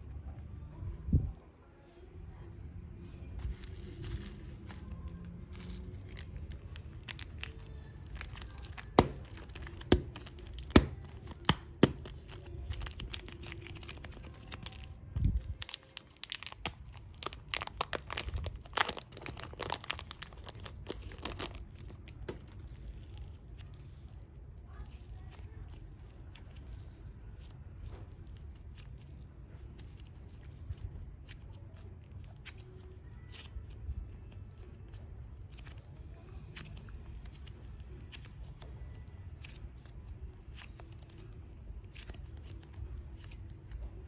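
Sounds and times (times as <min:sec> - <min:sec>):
plastic crinkling: 0:03.3 - 0:44.0
plastic packaging tearing: 0:03.4 - 0:34.7.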